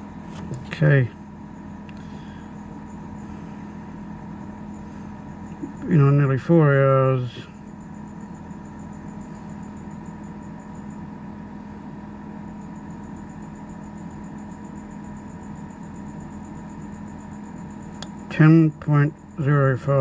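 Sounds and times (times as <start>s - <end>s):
fridge compressor humming: 0.0s - 20.0s.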